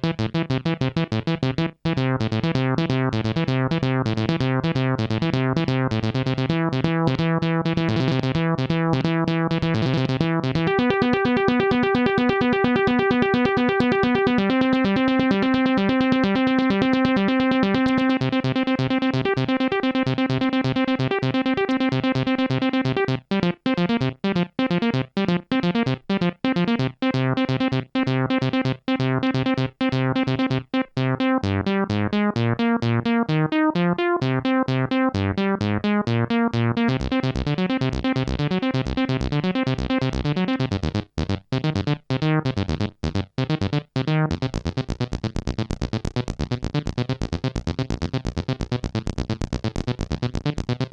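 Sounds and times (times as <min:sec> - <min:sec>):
synthesizer arpeggios: 0:00.2 - 0:50.9
held synthesizer chord: 0:01.9 - 0:25.8, 0:31.0 - 0:42.9.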